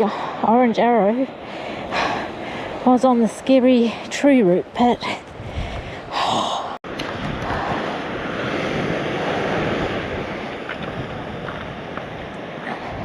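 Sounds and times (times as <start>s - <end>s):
wind on microphone: 3.7s - 13.0s
ocean surf breaking: 6.9s - 13.0s.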